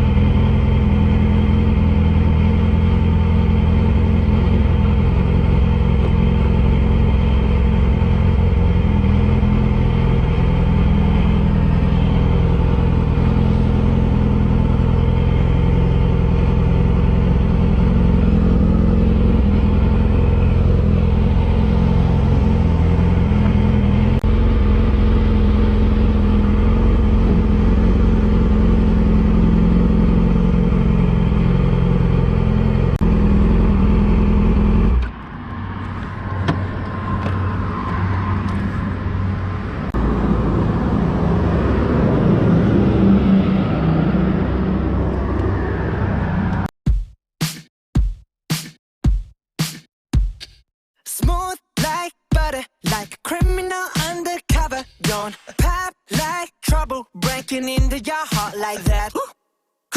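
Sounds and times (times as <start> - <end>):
motorcycle engine running: 0.0 - 45.5.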